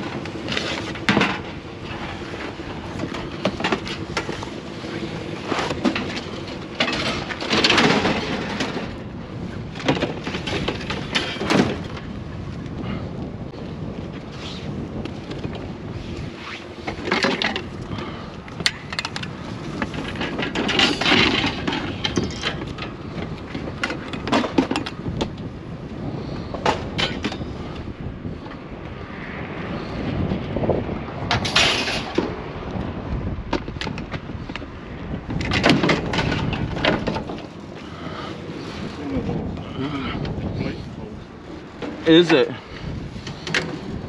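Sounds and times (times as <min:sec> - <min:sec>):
scrap metal knocks and clanks: 0:05.4 - 0:09.0, 0:09.8 - 0:12.0, 0:18.6 - 0:23.0, 0:31.3 - 0:32.4.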